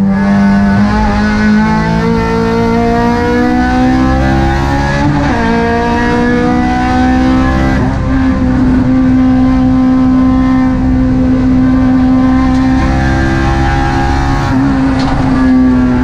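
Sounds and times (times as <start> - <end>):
car engine under way: 0.0 - 16.0.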